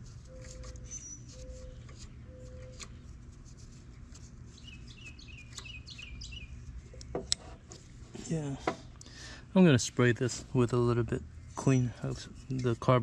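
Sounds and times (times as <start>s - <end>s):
low background hum: 0.0s - 13.0s
bird chirping: 0.2s - 3.0s, 4.5s - 7.1s
bird hooting: 0.2s - 3.0s.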